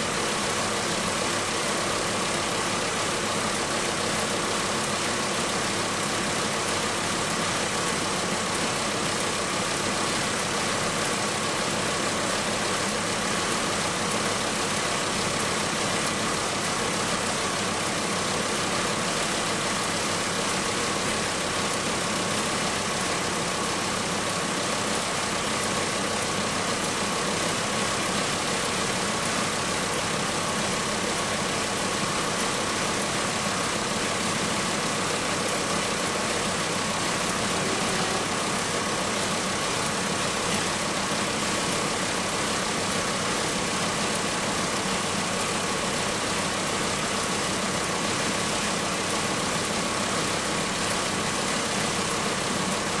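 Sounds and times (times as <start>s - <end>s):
steady high tone: 37.5s - 38.4s.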